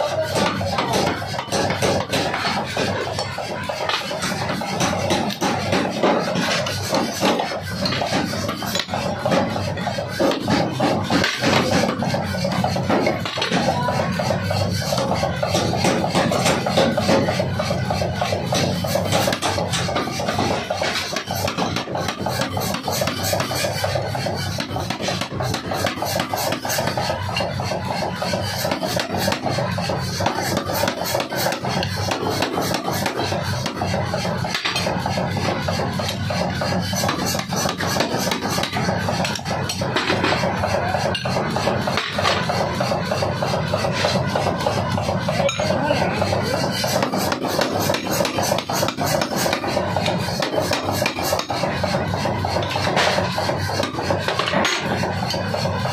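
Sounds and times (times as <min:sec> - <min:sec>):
forging hammer striking steel: 0:00.1 - 0:55.9.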